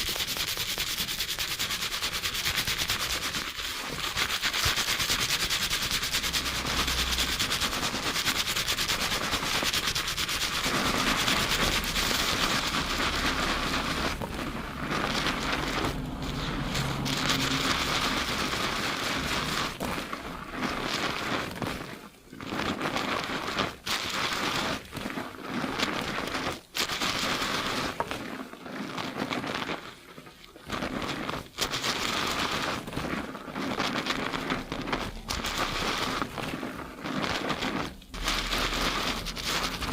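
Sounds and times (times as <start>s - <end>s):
fingers scrubbing lathered hair: 0.0s - 39.9s.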